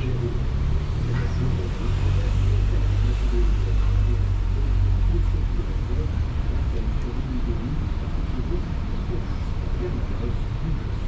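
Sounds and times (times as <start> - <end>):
moving vehicle rumble: 0.0 - 11.0.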